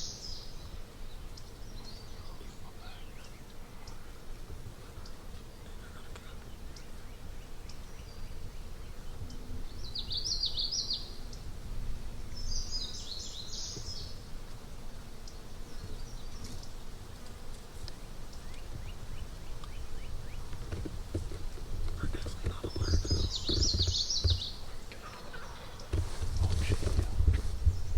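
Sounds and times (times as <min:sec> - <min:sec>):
songbird singing: 0:00.0 - 0:27.9
wind rumble on microphone: 0:05.6 - 0:14.4, 0:18.5 - 0:24.7, 0:25.3 - 0:27.9.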